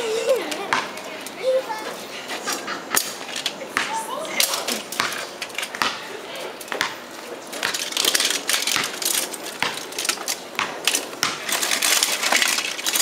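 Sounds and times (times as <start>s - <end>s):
toy cars clattering and clicking: 7.5s - 13.0s.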